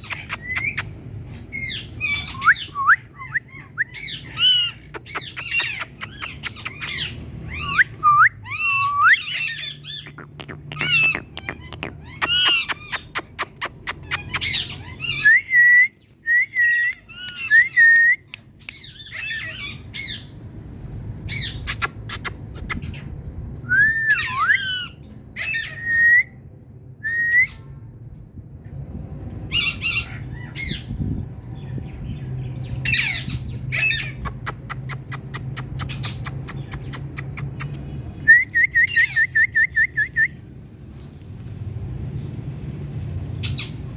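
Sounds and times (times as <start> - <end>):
parrot chirps: 0.0 - 15.3, 21.3 - 23.1, 32.8 - 38.0
parrot squawking and whistling: 0.0 - 20.3, 21.3 - 26.4, 32.8 - 40.4.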